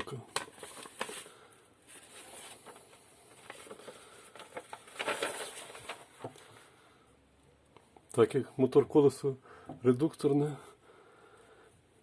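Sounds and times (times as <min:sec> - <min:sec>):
small handling clicks and rustles: 0:02.6 - 0:06.5.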